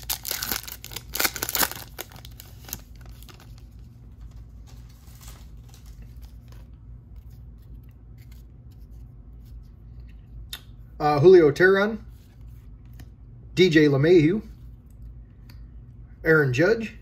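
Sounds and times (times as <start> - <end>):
steady low hum: 0.0 - 17.0
cards scraping and rustling: 0.2 - 10.1.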